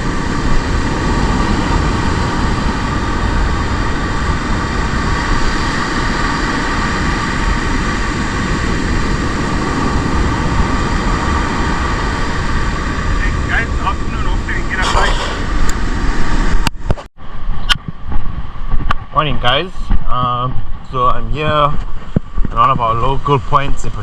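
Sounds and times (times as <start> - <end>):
surf roaring: 0.0 - 16.6
wind buffeting microphone: 0.0 - 24.0.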